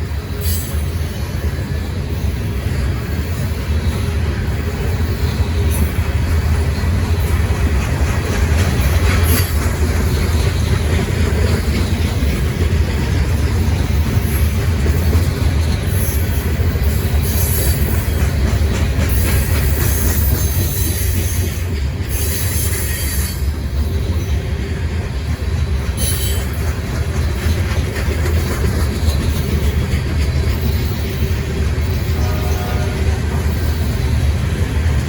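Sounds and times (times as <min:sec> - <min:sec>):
train wheels rumbling on rail: 0:00.0 - 0:35.0
wheel squeals: 0:08.4 - 0:24.6, 0:25.2 - 0:34.6.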